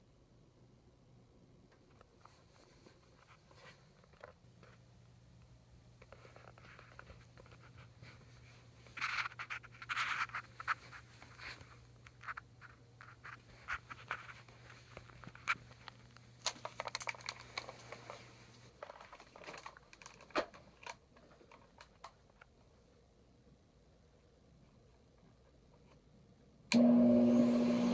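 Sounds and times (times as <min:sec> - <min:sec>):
handling scratching and rubbing: 0:02.0 - 0:04.9, 0:06.0 - 0:22.1.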